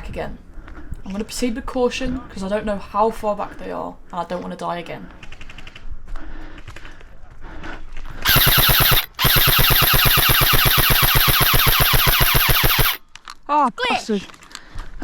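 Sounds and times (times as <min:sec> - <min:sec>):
airsoft rifle firing full auto: 0:08.2 - 0:13.0.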